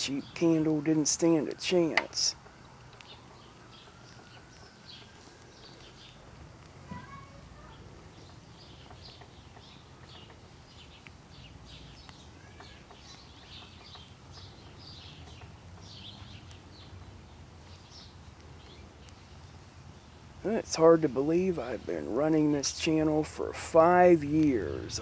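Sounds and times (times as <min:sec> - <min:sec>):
small birds chirping: 0:00.0 - 0:25.0
faint clicks: 0:01.5 - 0:17.1.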